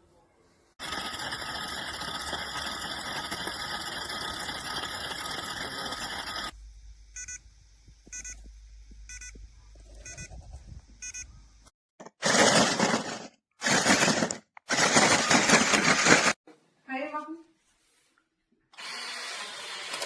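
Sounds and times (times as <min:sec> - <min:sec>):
loud hissing whine: 0:00.8 - 0:11.7
short electronic beeps: 0:07.1 - 0:11.4.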